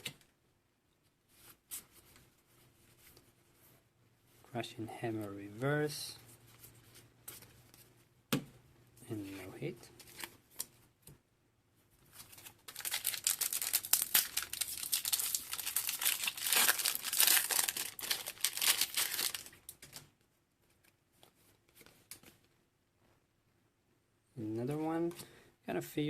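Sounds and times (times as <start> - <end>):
foil wrapper crinkling and tearing: 12.2 - 20.0.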